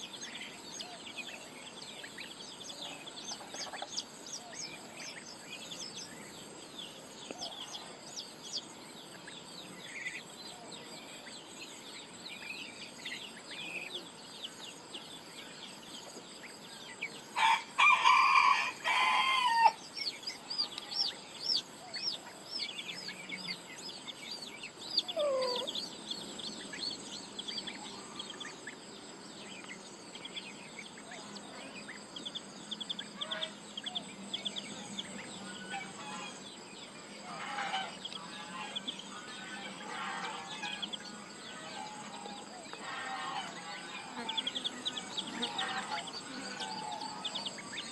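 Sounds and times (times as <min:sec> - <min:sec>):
small birds chirping: 0:00.0 - 0:47.9
rooster crowing: 0:17.4 - 0:19.8.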